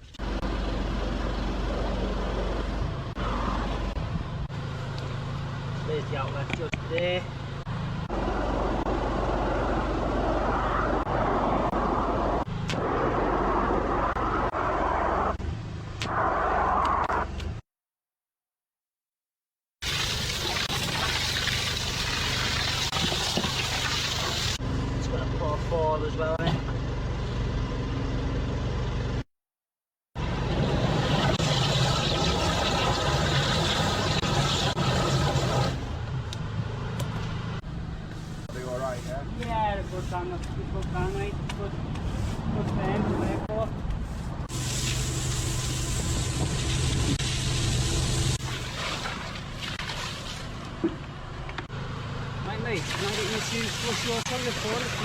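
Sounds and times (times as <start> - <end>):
steady engine hum: 0.0 - 16.2, 24.1 - 29.2, 50.2 - 55.0
engine running: 0.0 - 17.5, 19.9 - 29.2, 30.2 - 49.6
rushing hiss: 44.5 - 48.4.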